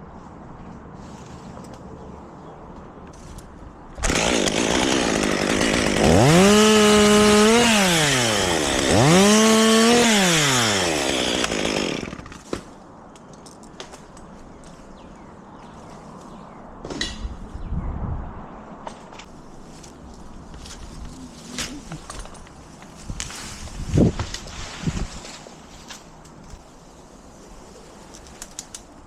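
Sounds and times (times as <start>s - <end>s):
chainsaw revving: 4.0s - 12.3s.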